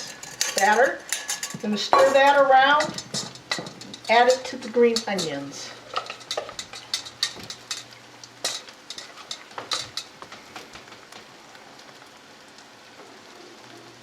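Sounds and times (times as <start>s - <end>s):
utensil scraping cookware: 0.0s - 10.2s
batter sizzling in frying pan: 0.0s - 14.0s.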